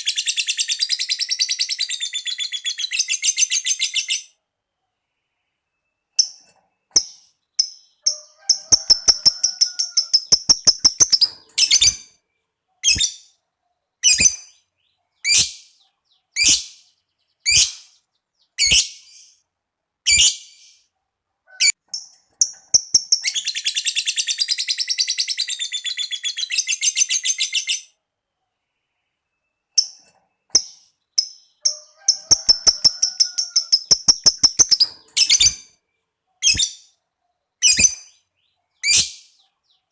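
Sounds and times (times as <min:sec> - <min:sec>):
lovebird chattering trill: 0:07.0 - 0:12.1, 0:12.8 - 0:13.3, 0:14.0 - 0:14.6, 0:15.2 - 0:15.7, 0:30.6 - 0:35.7, 0:37.6 - 0:38.2
lovebird calling: 0:08.0 - 0:12.1, 0:31.6 - 0:35.7.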